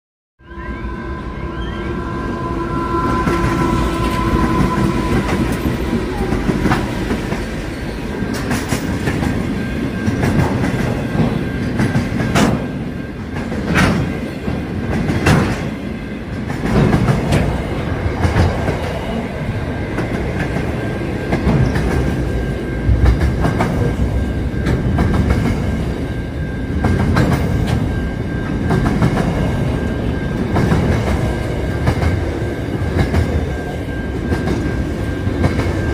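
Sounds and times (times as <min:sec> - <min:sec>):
steady high tone: 0:00.4 - 0:11.8, 0:17.6 - 0:35.9
diesel locomotive passing: 0:00.4 - 0:35.9.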